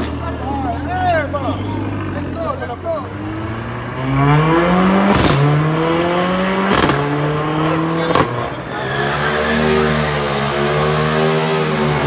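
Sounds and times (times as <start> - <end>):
car engine accelerating: 0.0 - 12.0
engine backfire crack: 5.0 - 5.6, 6.7 - 7.2.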